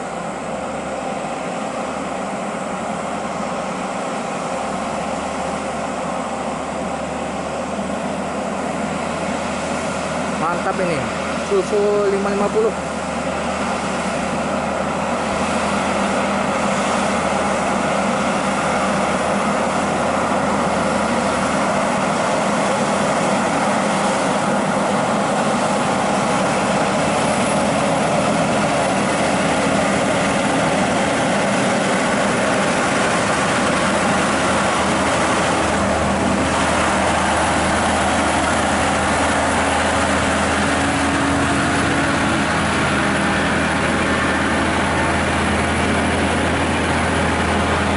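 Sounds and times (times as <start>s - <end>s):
truck diesel engine under heavy load: 0.0s - 47.9s.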